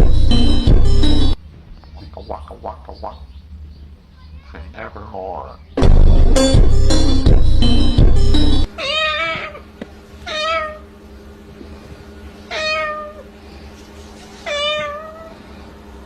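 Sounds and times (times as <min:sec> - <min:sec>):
cat meowing: 0:08.8 - 0:10.9, 0:12.5 - 0:13.3, 0:14.4 - 0:15.4.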